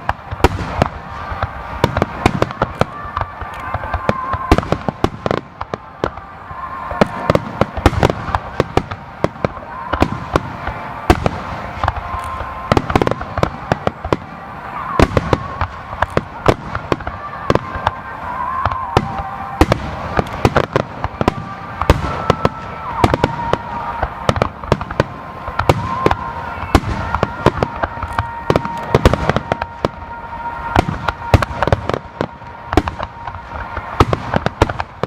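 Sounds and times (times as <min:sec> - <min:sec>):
fireworks bursting and crackling: 0:00.0 - 0:35.0.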